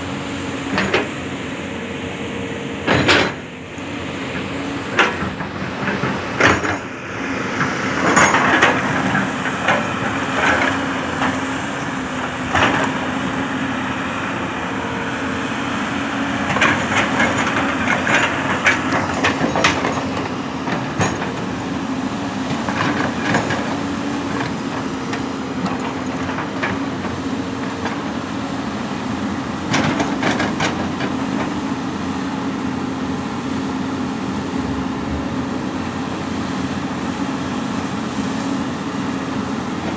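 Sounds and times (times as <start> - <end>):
diesel engine running: 0.0 - 39.9
knocks and clanks of earth and stone: 2.8 - 3.6, 4.4 - 7.0, 7.6 - 13.2, 16.3 - 28.2, 29.3 - 31.8.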